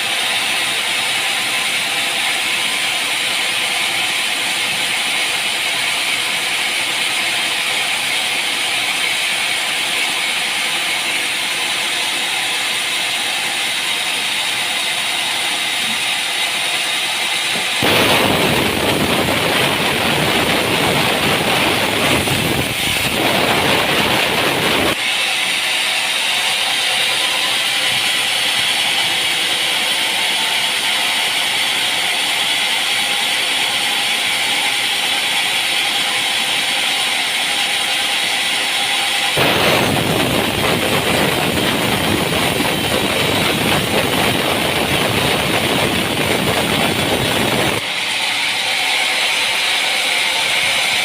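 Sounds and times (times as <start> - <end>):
sawmill machinery running: 0.0 - 51.0
harsh loud noise: 15.4 - 29.7, 39.3 - 51.0.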